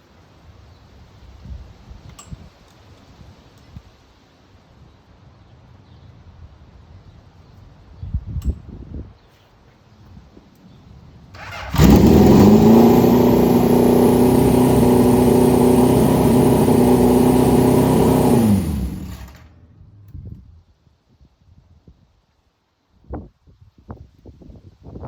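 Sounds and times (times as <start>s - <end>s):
motorcycle engine revving: 11.4s - 19.5s.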